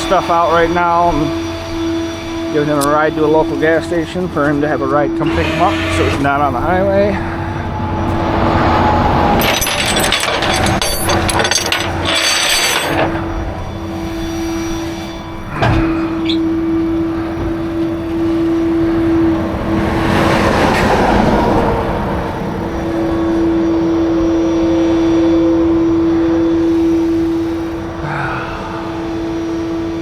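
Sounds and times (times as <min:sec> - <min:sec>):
highway traffic hum: 0:00.0 - 0:30.0
vehicle passing: 0:01.8 - 0:12.1, 0:16.5 - 0:26.4.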